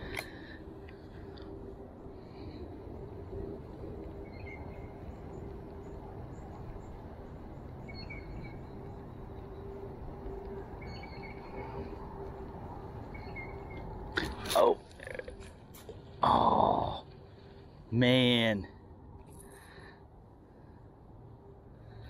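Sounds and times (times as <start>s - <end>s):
faint continuous hum: 0.0s - 22.0s
outdoor background rumble: 0.0s - 22.0s
small bird chirping: 7.8s - 9.7s, 10.8s - 11.8s, 13.0s - 13.9s.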